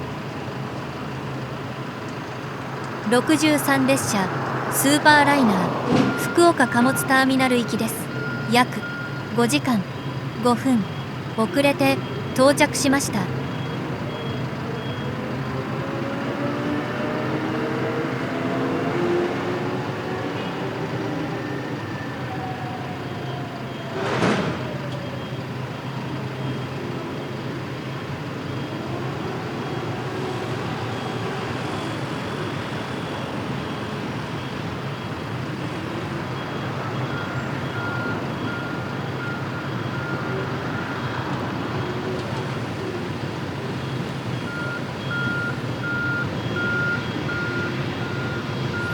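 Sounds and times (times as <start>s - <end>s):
repeating reversing alarm beep: 4.9s - 15.2s, 44.4s - 48.9s.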